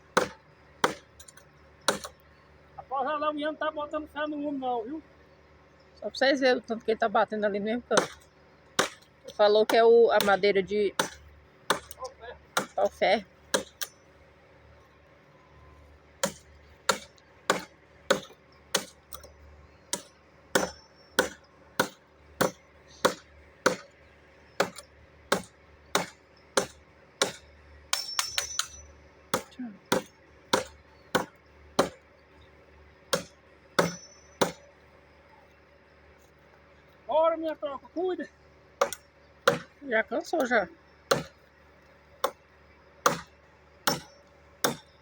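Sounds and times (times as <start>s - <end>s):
machete chopping a log: 0.1s - 2.2s, 8.0s - 9.1s, 11.0s - 12.9s, 13.5s - 14.0s, 16.2s - 19.3s, 19.9s - 23.9s, 24.6s - 32.0s, 33.1s - 34.6s, 38.8s - 39.8s, 41.1s - 41.4s, 42.2s - 42.4s, 43.0s - 44.9s.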